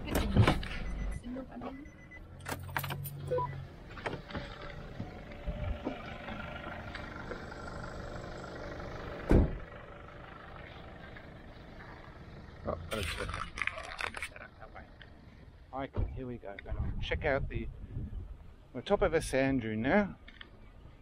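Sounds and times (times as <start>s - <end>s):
vehicle engine running: 3.3s - 15.7s
loud thump: 9.2s - 9.6s.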